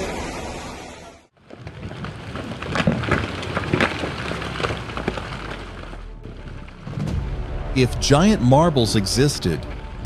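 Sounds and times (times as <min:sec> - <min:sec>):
rumbling noise: 0:00.0 - 0:10.0
rocks cracking and thudding: 0:01.4 - 0:07.4.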